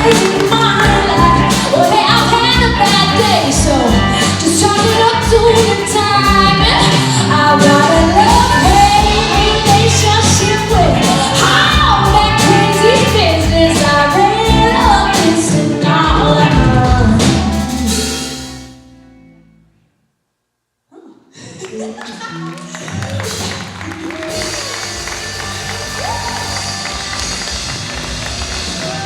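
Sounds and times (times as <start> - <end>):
person singing: 0.0 - 18.4
live rock band: 0.0 - 19.5, 22.6 - 29.0.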